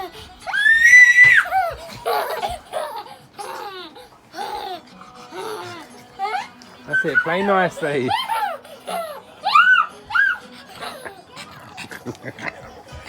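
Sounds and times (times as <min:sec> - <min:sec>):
child giggling: 0:00.0 - 0:07.4, 0:08.1 - 0:13.0
child squealing: 0:00.5 - 0:01.8, 0:09.4 - 0:10.4.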